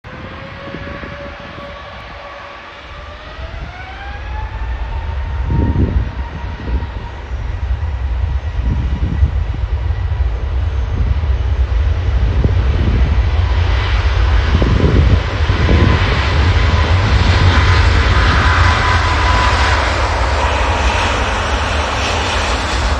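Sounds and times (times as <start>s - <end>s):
jet engines spooling up: 0.1s - 22.9s.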